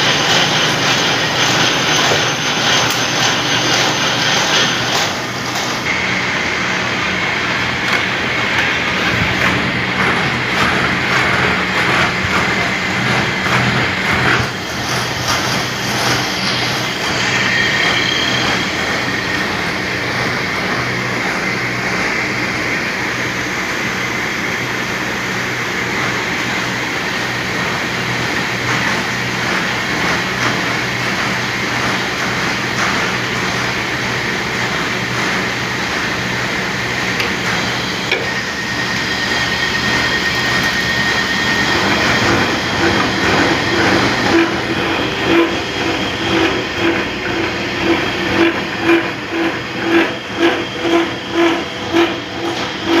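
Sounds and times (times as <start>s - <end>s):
rhythmic pulsing beat: 0.0s - 20.3s
machinery mechanical hum: 0.0s - 53.0s.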